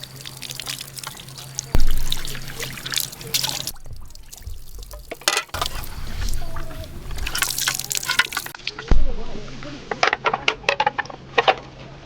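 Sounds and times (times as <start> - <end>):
water trickling and dripping: 0.0 - 8.6
low thump: 1.8 - 2.6, 3.7 - 7.3, 8.9 - 10.0.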